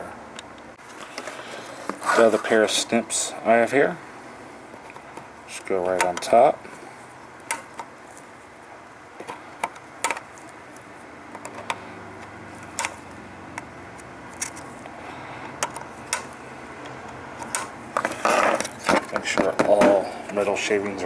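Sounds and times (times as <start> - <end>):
snips clipping wire leads: 9.2 - 20.4.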